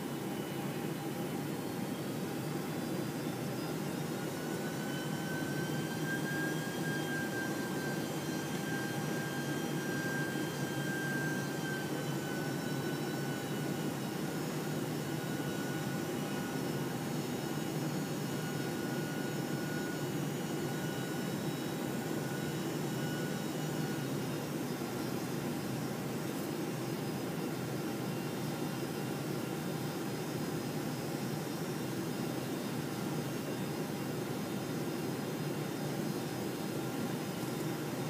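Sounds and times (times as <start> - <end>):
thin engine whines: 0.0 - 38.0.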